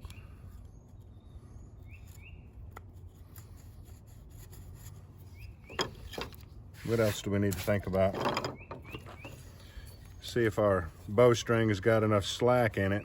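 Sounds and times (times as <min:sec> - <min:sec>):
bird chirping: 0:00.0 - 0:02.6, 0:05.3 - 0:06.4, 0:08.2 - 0:10.6.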